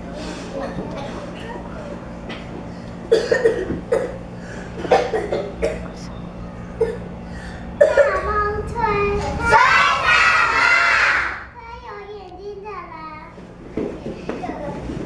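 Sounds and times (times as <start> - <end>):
children's voices: 0.0 - 2.0, 7.8 - 15.0
steady low hum: 0.0 - 15.0
children coughing: 0.2 - 1.6, 3.0 - 6.1, 6.8 - 8.4
drawn-out vocal call: 6.4 - 11.5.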